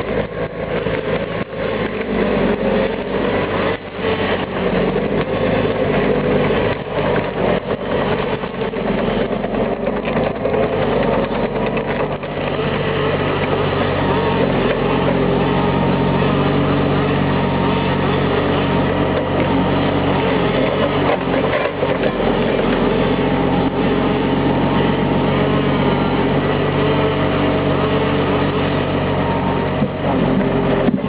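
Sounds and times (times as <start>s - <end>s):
tractor diesel engine running: 0.0s - 31.0s
log knocks and clatter: 3.4s - 13.7s, 29.8s - 31.0s.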